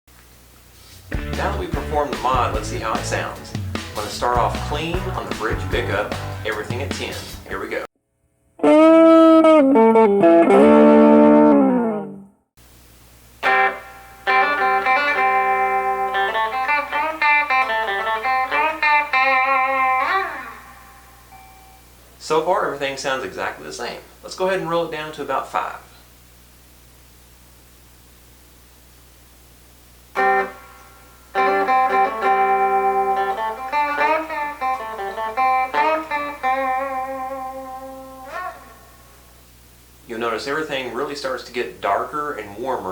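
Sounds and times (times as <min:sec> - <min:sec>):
clean electric guitar playing: 0:01.1 - 0:07.6, 0:08.6 - 0:12.4, 0:13.4 - 0:21.6, 0:30.1 - 0:39.3.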